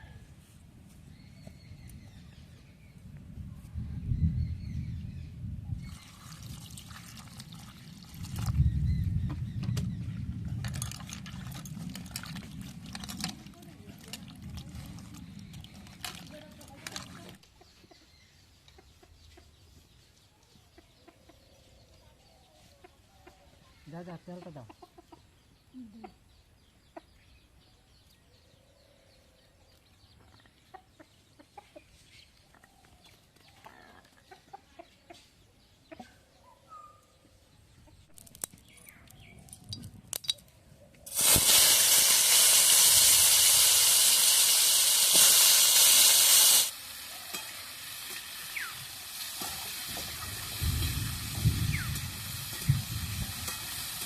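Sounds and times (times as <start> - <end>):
chickens clucking: 20.6 - 21.6, 24.3 - 27.2, 30.2 - 32.6, 33.6 - 36.5
food sizzling in hot oil: 41.1 - 54.0.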